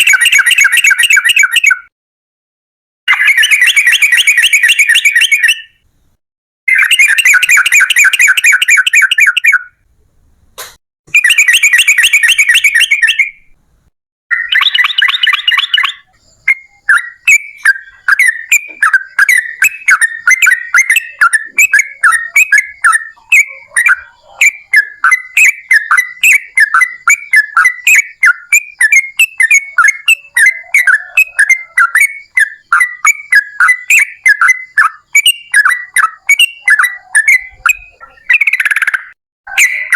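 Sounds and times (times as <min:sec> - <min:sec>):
bulbul bubbling chatter: 0:14.4 - 0:39.9.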